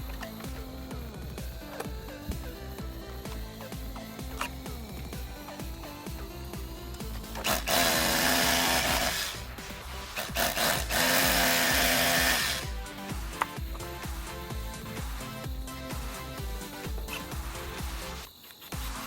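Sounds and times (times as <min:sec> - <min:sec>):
background music: 0:00.0 - 0:19.0
power drill running: 0:07.0 - 0:13.5.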